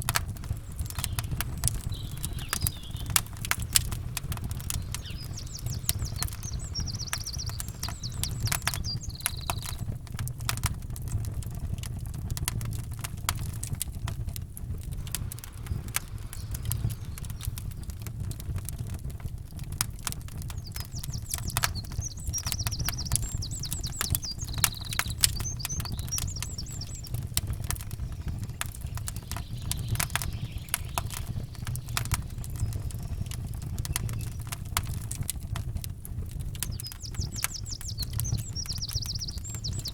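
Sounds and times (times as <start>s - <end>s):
low rumble: 0.0s - 9.1s, 13.5s - 20.4s
campfire crackling and popping: 0.0s - 39.9s
bird trilling: 0.7s - 9.8s, 21.0s - 27.2s.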